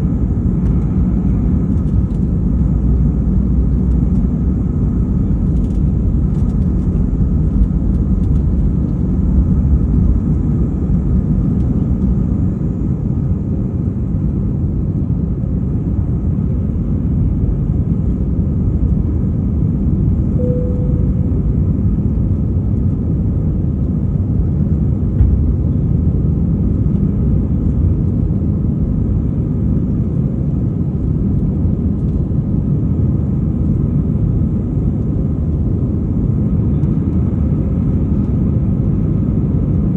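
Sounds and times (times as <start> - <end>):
jet airliner engines rumbling: 0.0 - 39.9
short single tone: 20.4 - 21.6.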